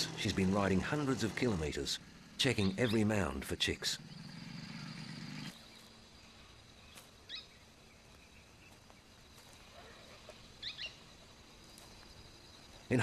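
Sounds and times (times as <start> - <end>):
low engine hum: 0.0 - 6.5
bird chirp: 0.0 - 13.0.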